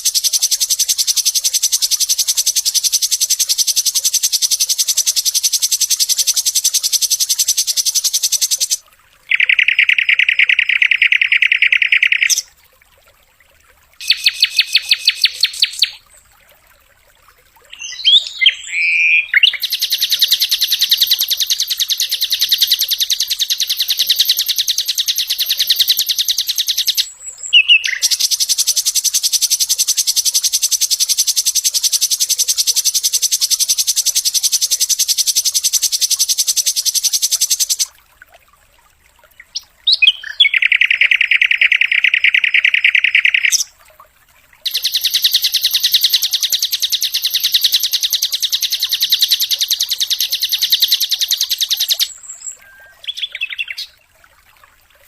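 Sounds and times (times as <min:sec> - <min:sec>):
flycatcher singing rapid trills: 0:00.0 - 0:12.4, 0:14.0 - 0:16.0, 0:17.8 - 0:37.9, 0:44.7 - 0:53.9.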